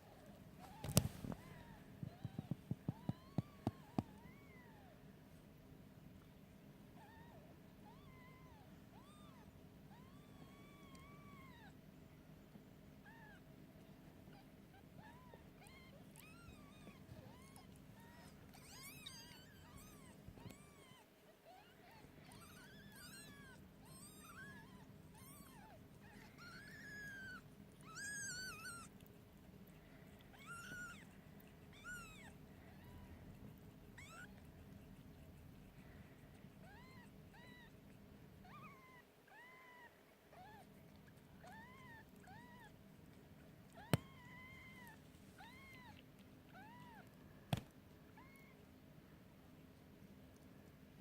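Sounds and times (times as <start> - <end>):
kittens mewing: 14.3 - 29.1, 29.7 - 42.8.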